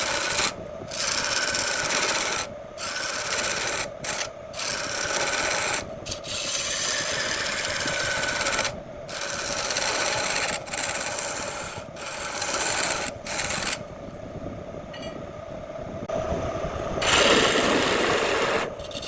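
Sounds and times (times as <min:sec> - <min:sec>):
tool scraping wood on lathe: 0:00.0 - 0:13.8, 0:17.0 - 0:19.0.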